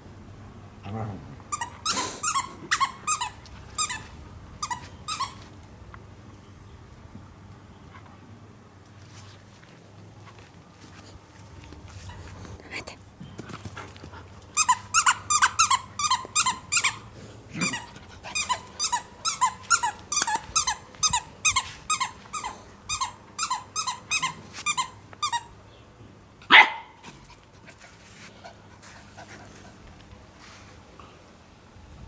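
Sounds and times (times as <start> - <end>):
squeaky dog toy squeaking: 1.5 - 5.5, 14.6 - 25.6.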